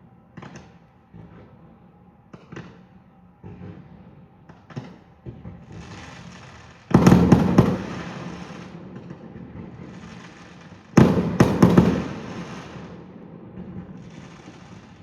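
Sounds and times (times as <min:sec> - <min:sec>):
fireworks bangs: 0:04.6 - 0:15.0.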